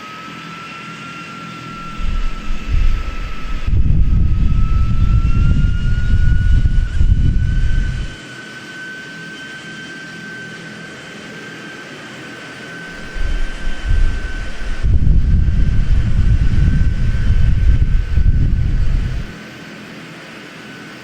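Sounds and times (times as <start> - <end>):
aircraft engine whine: 0.0 - 21.0
wind rumble on microphone: 1.7 - 8.2, 12.9 - 19.4.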